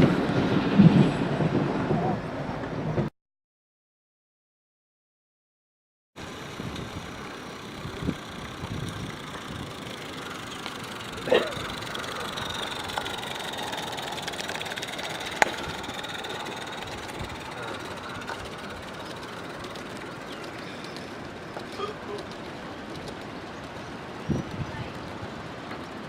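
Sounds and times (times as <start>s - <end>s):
locomotive rumbling: 6.2s - 26.0s.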